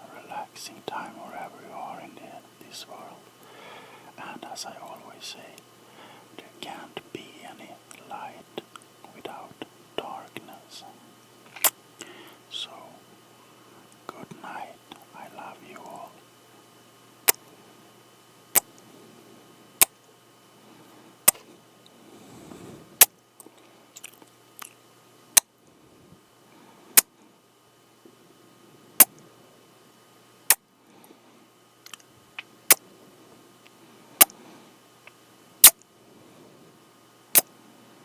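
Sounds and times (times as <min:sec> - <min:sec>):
faint breathing: 0:02.2 - 0:04.6, 0:05.2 - 0:06.6, 0:12.0 - 0:12.5, 0:20.6 - 0:24.0, 0:30.8 - 0:31.6, 0:32.8 - 0:34.9, 0:36.0 - 0:36.8.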